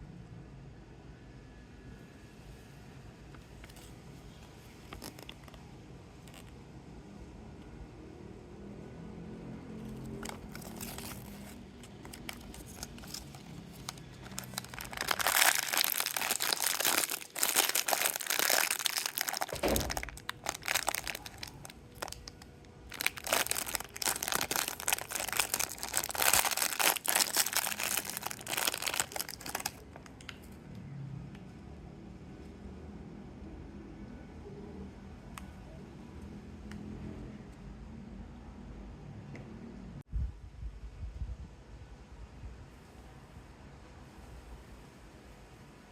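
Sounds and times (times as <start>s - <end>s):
plastic wrapping crinkling and tearing: 4.7s - 6.5s, 9.8s - 30.2s.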